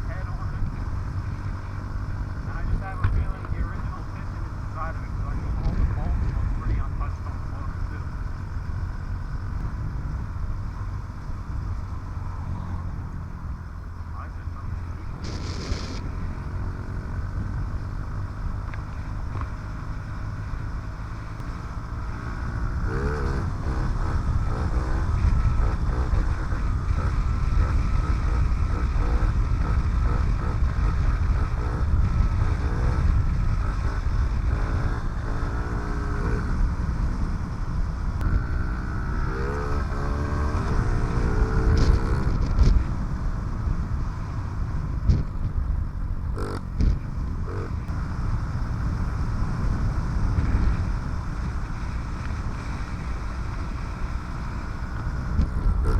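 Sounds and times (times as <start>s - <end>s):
wind rumbling on microphone: 0.0s - 55.9s
small motorcycle engine revving: 14.6s - 55.9s.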